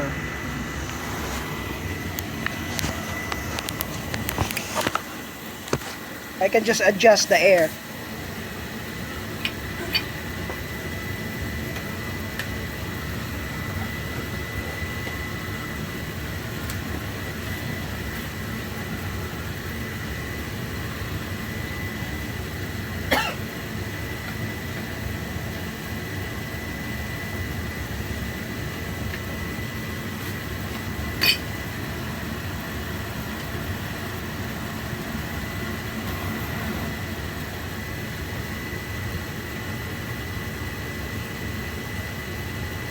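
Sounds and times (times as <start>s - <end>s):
faint high whine: 0.0s - 30.0s
boiler burner rumbling: 0.0s - 42.9s.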